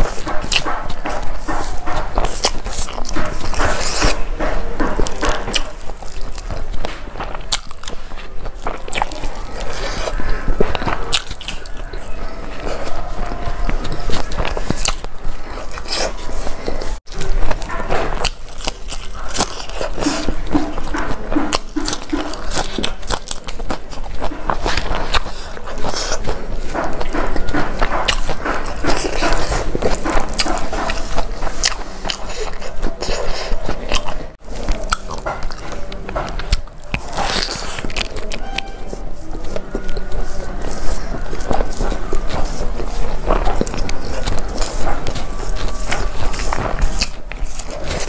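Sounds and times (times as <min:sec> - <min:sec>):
chewing and wet smacking: 0:00.0 - 0:48.0.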